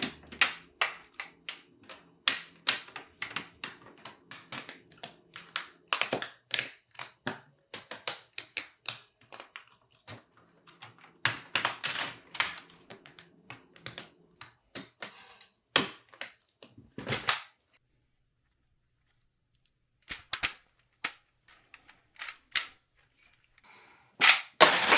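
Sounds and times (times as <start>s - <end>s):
plastic bricks clicking together: 19.6s - 23.5s.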